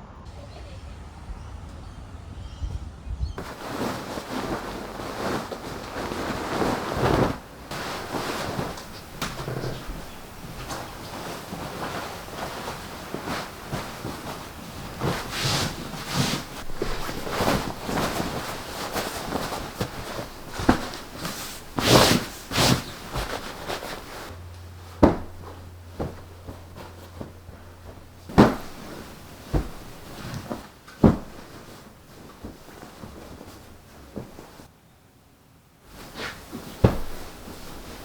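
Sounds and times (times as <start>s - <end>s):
bedding rustling and flapping: 3.3s - 34.7s, 35.7s - 38.0s
thumps: 3.4s - 33.6s.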